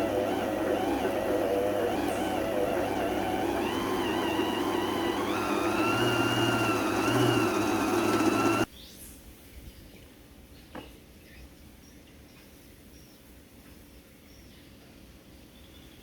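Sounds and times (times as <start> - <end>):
electric blender running: 0.0 - 8.7.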